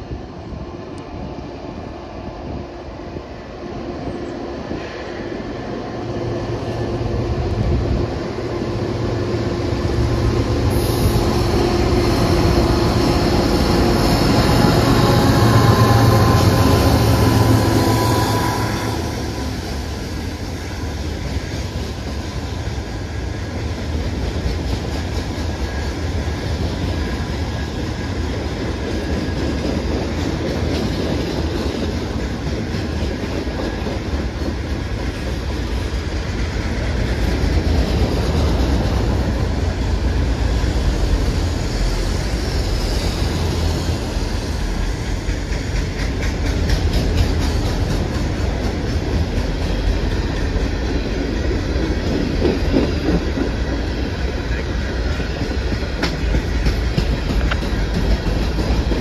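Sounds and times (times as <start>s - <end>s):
diesel locomotive engines: 0.0s - 59.0s
wheels clattering on rail: 42.9s - 59.0s.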